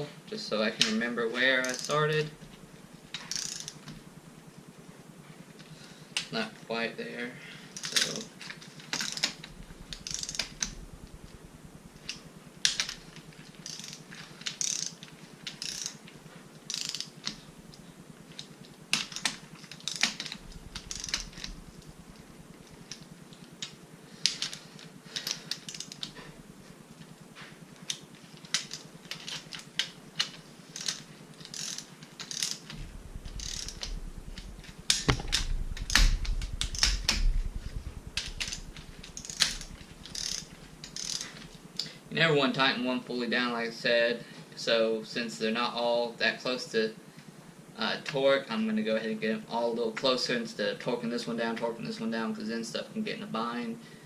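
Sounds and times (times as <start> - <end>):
ratchet wrench clicking: 1.6 - 2.0, 3.1 - 3.8, 8.9 - 10.9, 13.6 - 16.0, 16.7 - 17.4, 19.0 - 21.9, 25.2 - 26.2, 27.9 - 41.4.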